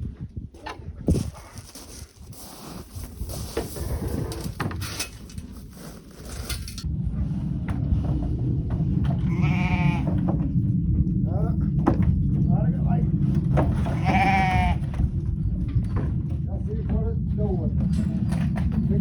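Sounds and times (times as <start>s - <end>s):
steady low rumble: 0.0s - 19.0s
clicks and rustling: 1.1s - 6.8s
farm animal bleating: 9.2s - 10.2s, 13.8s - 14.9s.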